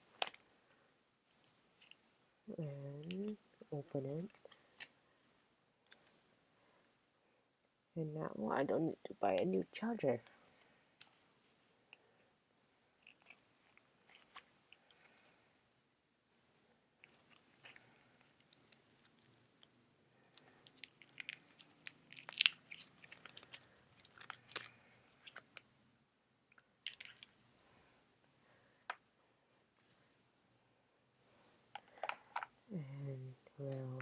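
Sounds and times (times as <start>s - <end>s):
packaging crinkling: 18.4s - 25.6s.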